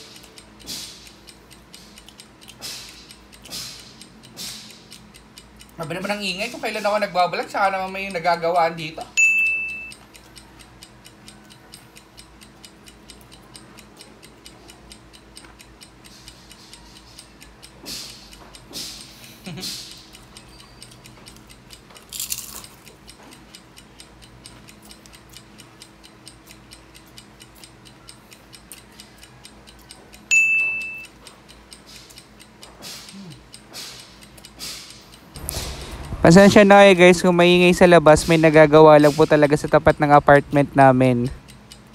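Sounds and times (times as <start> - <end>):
countdown timer ticking: 0.0 - 41.9
short high beep: 9.2 - 10.0, 30.3 - 31.1.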